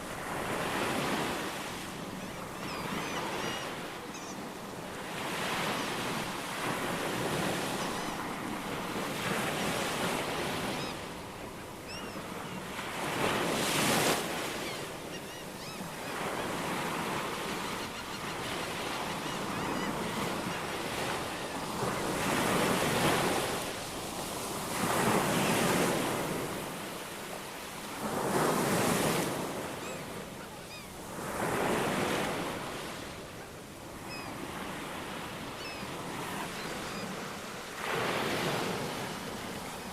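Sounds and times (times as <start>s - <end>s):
ocean waves breaking: 0.0s - 39.9s
faint bird chirps: 2.2s - 4.6s, 11.9s - 12.6s, 14.6s - 16.4s.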